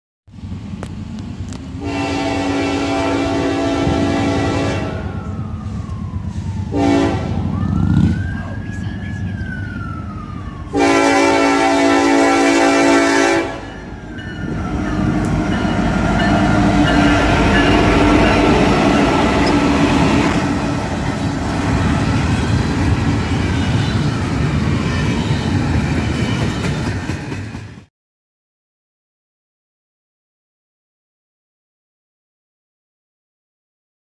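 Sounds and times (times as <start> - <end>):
train wheels rumbling on rail: 0.4 - 9.4, 10.7 - 27.9
locomotive horn blast: 1.8 - 5.2, 6.6 - 8.1, 10.7 - 13.9, 14.5 - 26.6
faint siren wailing: 3.5 - 26.7.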